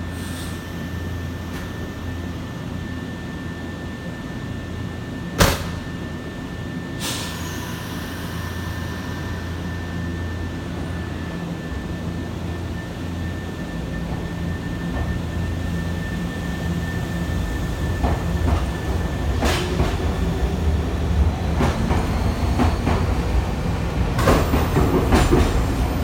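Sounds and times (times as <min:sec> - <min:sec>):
air hiss: 0:07.0 - 0:10.0.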